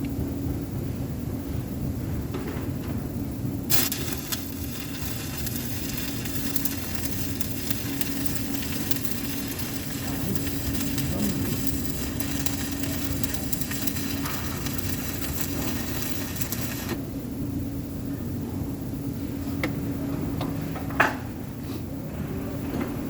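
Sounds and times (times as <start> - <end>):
welding arc crackling: 3.7 - 17.1
low hum: 3.7 - 18.1.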